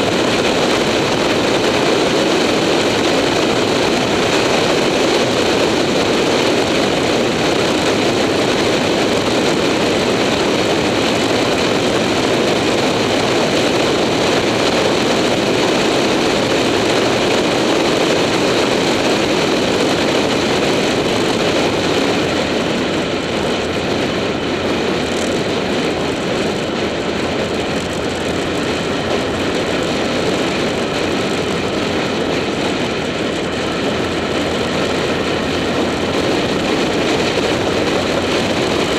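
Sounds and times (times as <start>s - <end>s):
motorcycle engine running: 0.0s - 38.9s
wind rushing over camera: 0.0s - 38.9s.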